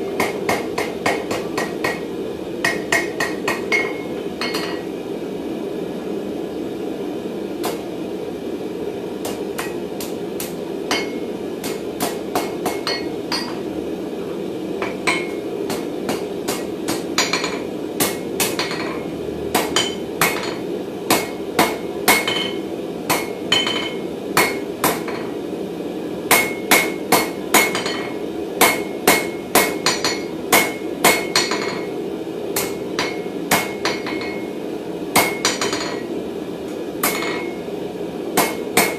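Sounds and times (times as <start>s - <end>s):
hammer striking steel on anvil: 0.0s - 4.9s, 9.2s - 13.7s, 14.8s - 25.4s, 26.3s - 31.9s, 32.6s - 34.5s, 35.1s - 36.1s, 37.0s - 37.6s, 38.4s - 38.9s.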